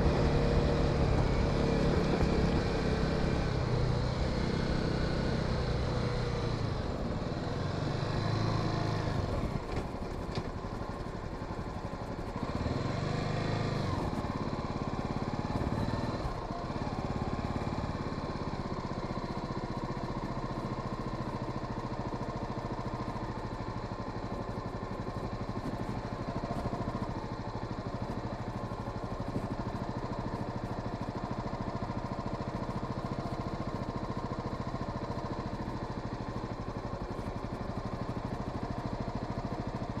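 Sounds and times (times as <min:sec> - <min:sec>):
motorcycle engine revving: 0:00.0 - 0:18.2.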